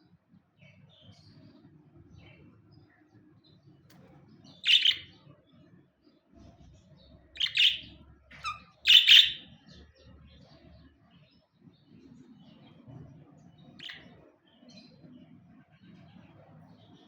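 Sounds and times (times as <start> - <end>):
budgerigar chirping: 4.6 - 5.2, 7.4 - 9.6, 13.8 - 14.1.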